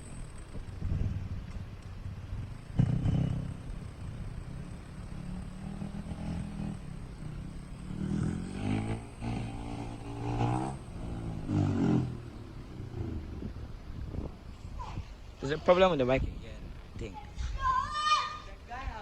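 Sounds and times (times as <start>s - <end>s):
dirt bike engine revving: 2.0s - 14.3s.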